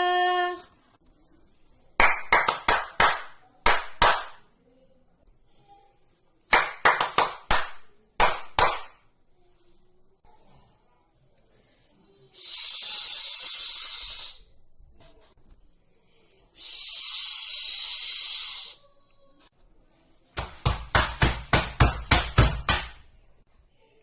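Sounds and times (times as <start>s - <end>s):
person making breathy hisses: 12.3s - 14.6s, 16.5s - 18.9s.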